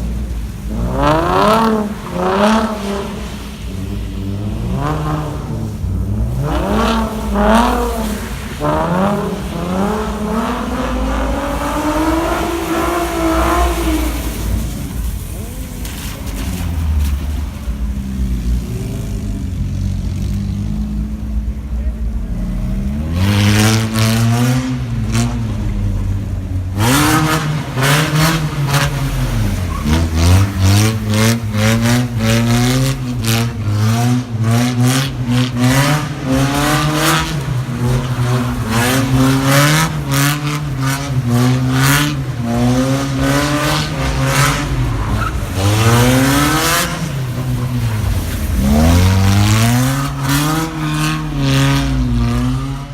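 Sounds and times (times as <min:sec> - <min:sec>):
car engine revving at limiter: 0:00.0 - 0:52.9
exhaust crackles and bangs: 0:11.2 - 0:23.1.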